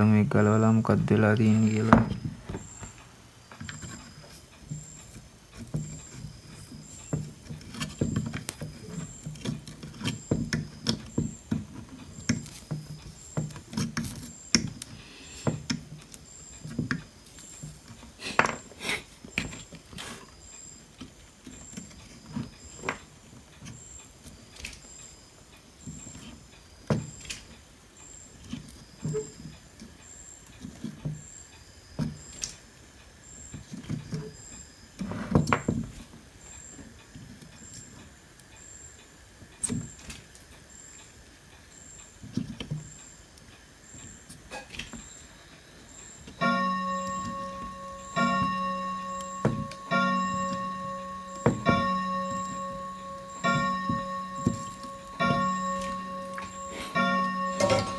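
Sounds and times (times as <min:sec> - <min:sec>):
hand tools clicking and tapping: 0:01.0 - 0:20.1, 0:46.2 - 0:57.9.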